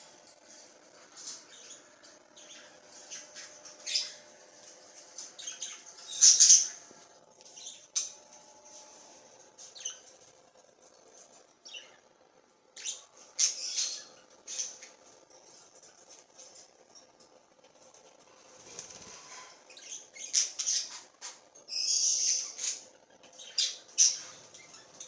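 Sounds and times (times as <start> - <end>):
faint steady hum: 0.0 - 25.0
budgerigars chirping: 2.4 - 4.2, 5.3 - 6.8, 12.8 - 14.9, 19.7 - 21.0, 21.7 - 22.8, 23.4 - 24.8.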